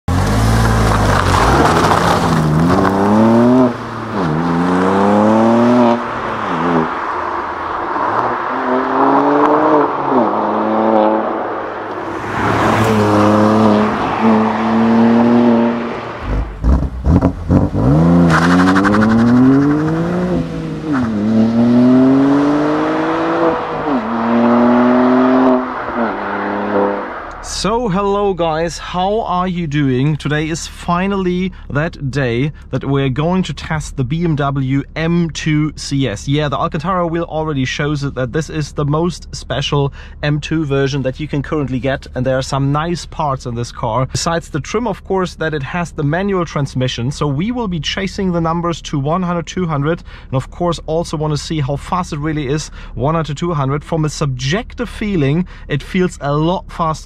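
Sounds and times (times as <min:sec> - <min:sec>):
car engine accelerating: 0:00.0 - 0:28.7
exhaust cracks: 0:00.1 - 0:57.0.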